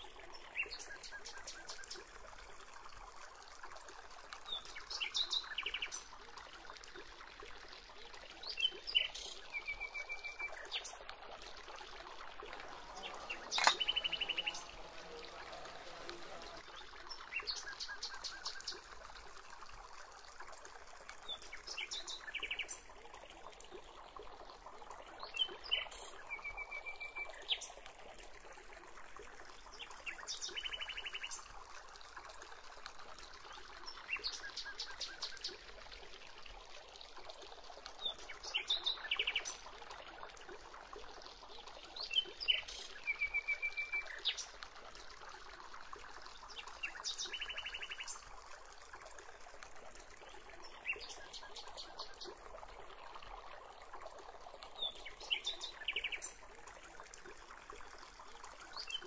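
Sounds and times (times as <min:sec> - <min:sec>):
birds trilling and chirping: 0:12.8 - 0:16.5.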